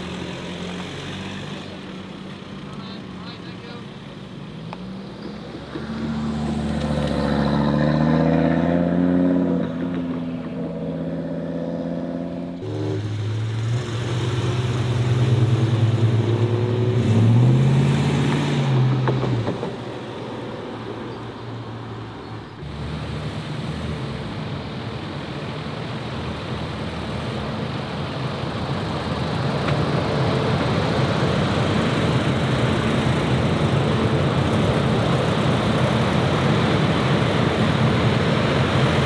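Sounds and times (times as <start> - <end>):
car engine accelerating: 4.2 - 39.0
deeper car engine revving: 5.0 - 20.0, 22.5 - 24.8.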